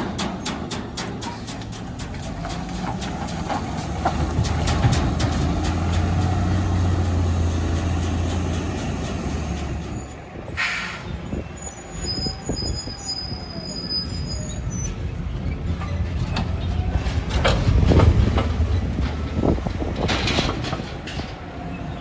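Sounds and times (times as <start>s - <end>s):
garbage truck diesel engine: 0.0s - 22.0s
high brake squeal: 0.1s - 1.8s, 9.7s - 16.8s
air brakes hissing: 8.7s - 14.8s.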